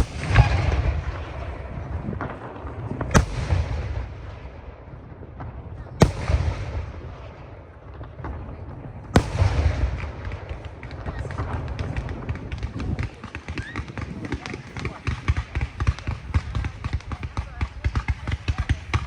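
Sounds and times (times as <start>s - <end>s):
firework shells bursting: 0.0s - 1.4s
firework crackles: 0.0s - 4.5s
rumbling echo: 0.0s - 19.0s.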